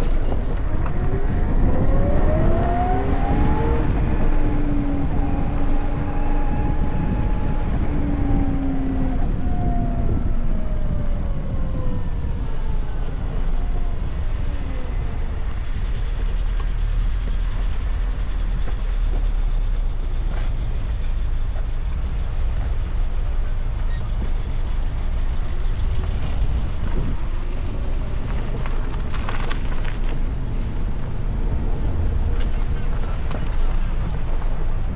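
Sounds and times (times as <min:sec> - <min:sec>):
low wind rumble: 0:00.0 - 0:34.9
road noise: 0:00.0 - 0:34.9
vehicles passing: 0:00.0 - 0:34.9.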